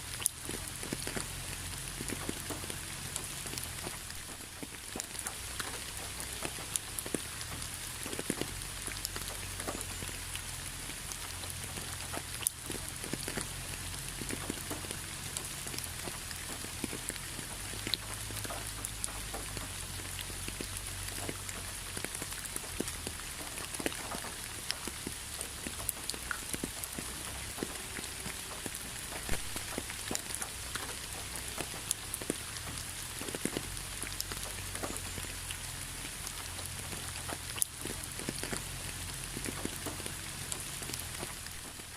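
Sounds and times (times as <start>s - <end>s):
raindrops ticking on a surface: 0.0s - 41.9s.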